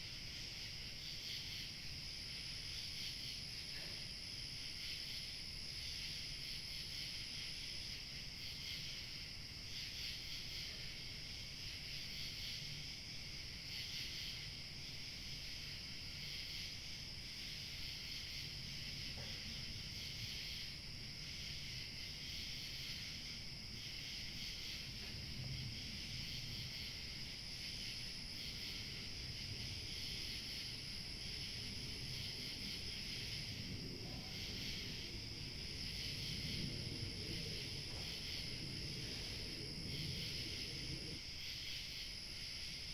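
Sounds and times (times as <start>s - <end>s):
crickets chirping: 0.0s - 42.9s
low wind rumble: 20.8s - 41.3s.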